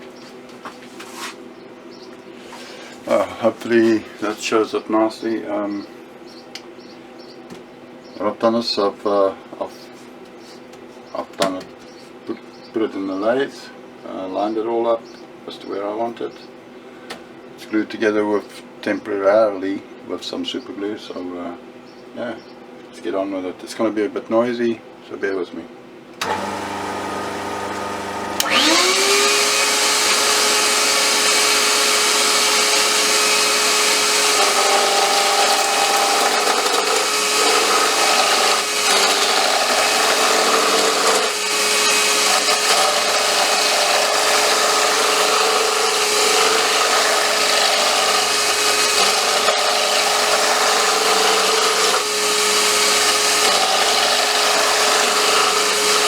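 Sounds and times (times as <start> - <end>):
lathe motor whine: 26.2 - 56.0
chisel rasping on wood: 28.4 - 56.0.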